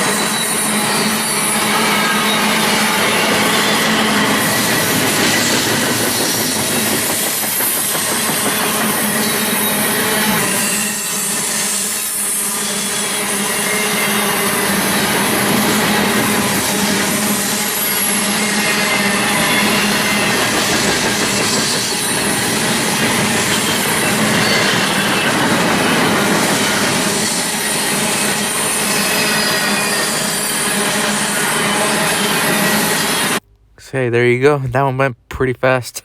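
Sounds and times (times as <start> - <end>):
high wheel squeal: 0.0 - 6.6, 7.5 - 15.4, 23.1 - 33.4
train wheels rushing on rail: 0.0 - 33.4.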